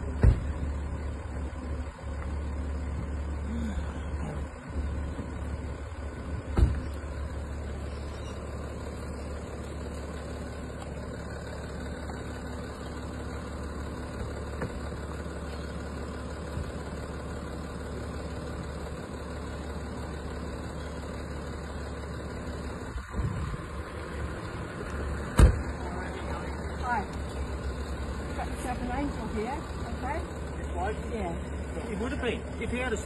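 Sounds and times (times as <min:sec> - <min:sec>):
vehicle engine idling: 0:00.0 - 0:33.0
sharp thump: 0:00.2 - 0:00.6, 0:06.5 - 0:06.8, 0:25.3 - 0:25.6.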